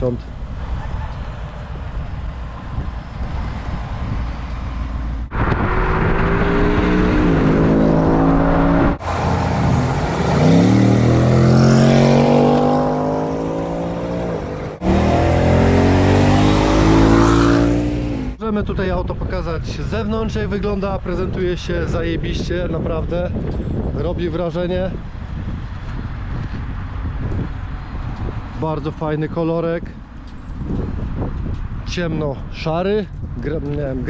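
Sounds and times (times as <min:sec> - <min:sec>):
car engine revving: 0:04.4 - 0:18.4.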